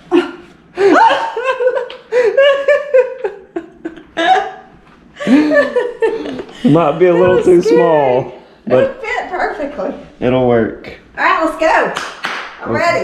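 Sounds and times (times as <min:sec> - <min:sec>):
laughter: 0:00.1 - 0:07.4.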